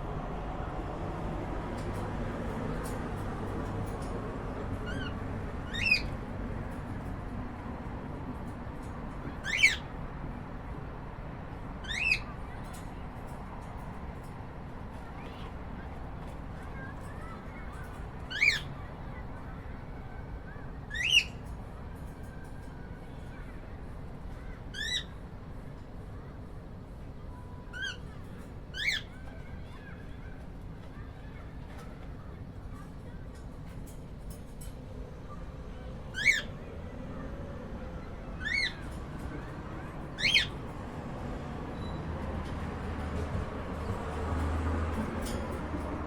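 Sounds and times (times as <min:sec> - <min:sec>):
cockatiel call rising in pitch: 0:40.2 - 0:40.6.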